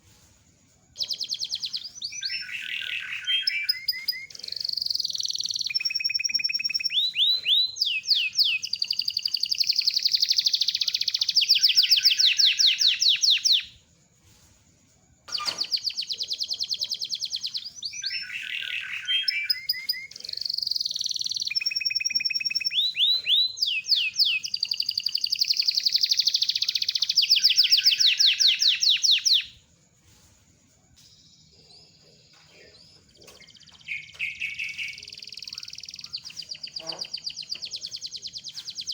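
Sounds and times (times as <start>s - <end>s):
canary singing trills: 0.9s - 13.8s, 15.3s - 29.6s, 31.1s - 38.9s.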